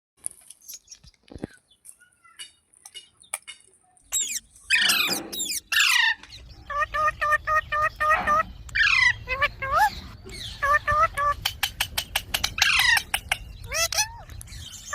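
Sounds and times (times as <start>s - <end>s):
parrot clicks and soft chirps: 0.2s - 5.6s, 11.3s - 14.9s
parrot calling: 4.1s - 11.4s, 12.5s - 14.3s.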